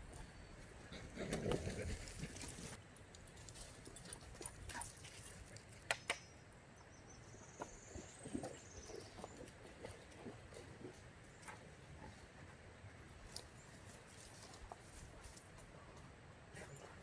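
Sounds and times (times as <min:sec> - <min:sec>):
faint clicks and rustles: 0:13.2 - 0:17.0.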